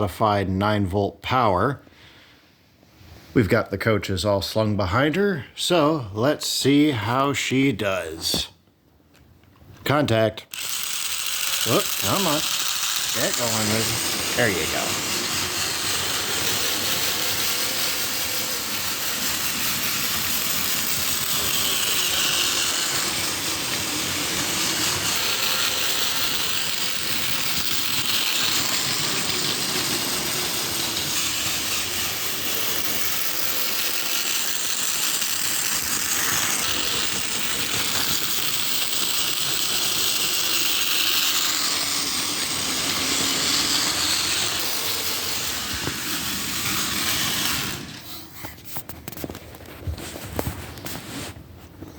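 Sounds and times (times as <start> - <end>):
toy train motor whirring: 10.0 - 49.6.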